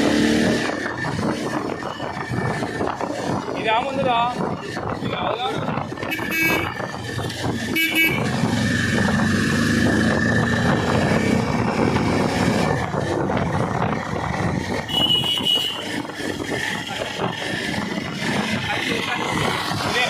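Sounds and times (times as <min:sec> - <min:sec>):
motorcycle engine: 0:00.0 - 0:20.0
wind noise: 0:00.0 - 0:20.0
vehicle horn beep: 0:06.1 - 0:06.7, 0:07.7 - 0:08.4, 0:14.9 - 0:15.8.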